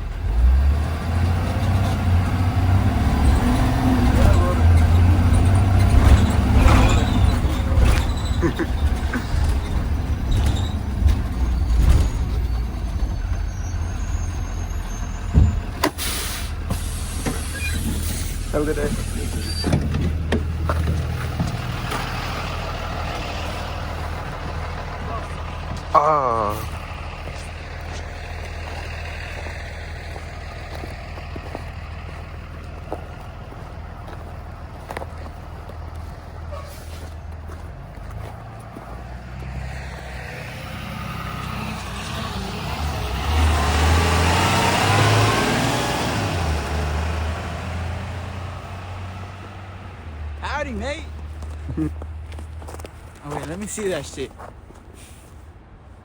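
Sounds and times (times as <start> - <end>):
bus engine rumble: 0.0 - 56.0
air brakes hissing: 13.1 - 19.7, 55.0 - 55.4.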